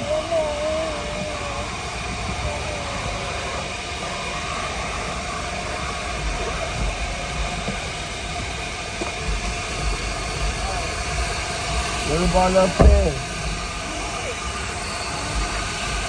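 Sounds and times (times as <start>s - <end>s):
car vacuum running: 0.0s - 16.0s.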